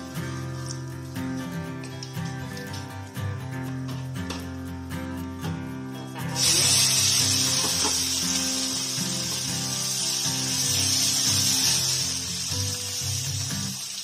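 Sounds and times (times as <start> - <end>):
food sizzling in hot oil: 0.0 - 3.0, 6.3 - 14.0
background music: 0.0 - 14.0.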